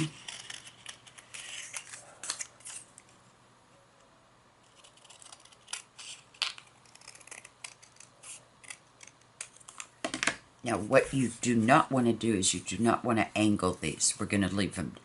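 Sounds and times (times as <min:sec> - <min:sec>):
scissors cutting paper: 0:00.0 - 0:02.9, 0:04.7 - 0:09.7.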